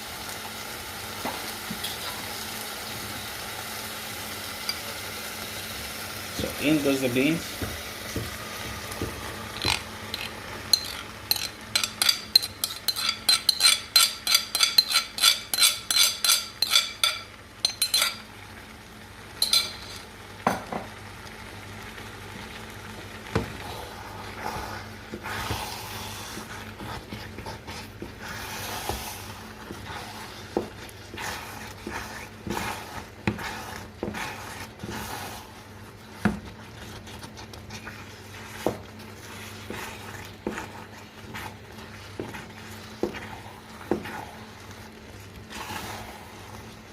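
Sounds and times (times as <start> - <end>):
utensil scraping pot: 9.0 - 18.3, 19.4 - 20.1, 23.7 - 46.9
utensil clinking against pot: 9.6 - 18.2, 19.4 - 20.0.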